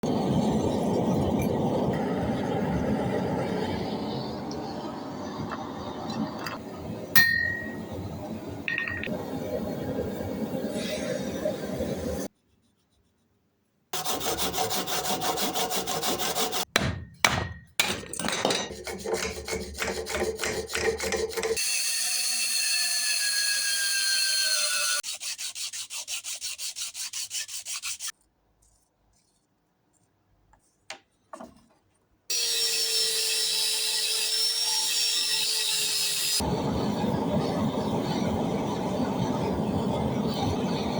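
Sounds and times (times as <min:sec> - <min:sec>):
hand tool sawing or filing: 0:14.0 - 0:16.7, 0:18.7 - 0:21.7, 0:22.7 - 0:28.1.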